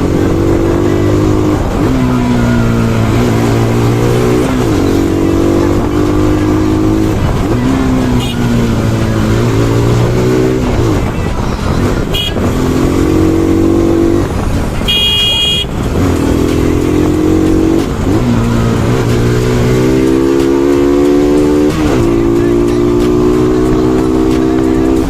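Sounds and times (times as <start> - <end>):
motorcycle engine revving through gears: 0.0 - 25.0
vehicle horn beeping: 8.1 - 8.6, 12.0 - 12.6, 14.8 - 15.8.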